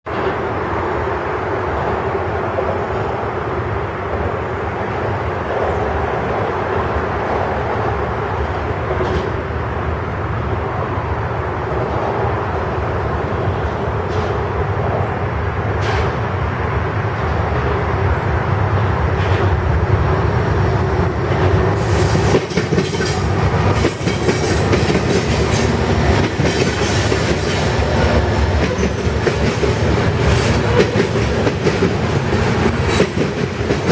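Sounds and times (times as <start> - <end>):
freight train rumbling past: 0.0 - 33.9
wheels clacking over rail joints: 4.1 - 9.6, 21.3 - 33.9.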